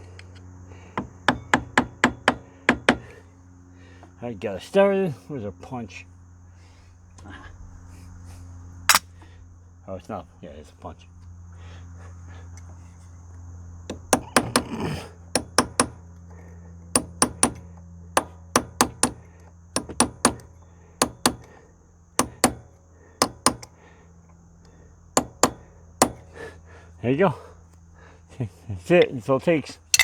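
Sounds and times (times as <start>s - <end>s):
hammer tapping steel punch: 15.4s - 16.0s, 17.0s - 17.6s, 18.2s - 19.2s, 19.8s - 21.5s, 22.2s - 23.7s, 25.2s - 26.3s.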